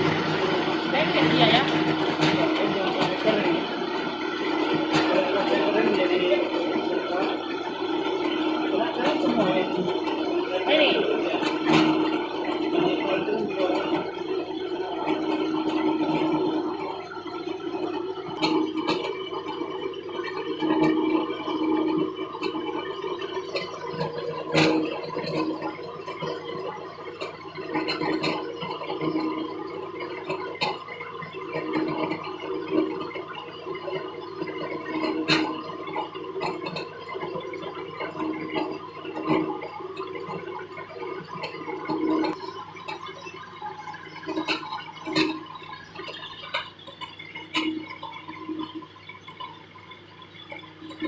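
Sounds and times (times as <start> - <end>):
wood lathe running: 0.0 - 17.0
faint motor hum: 0.0 - 51.0.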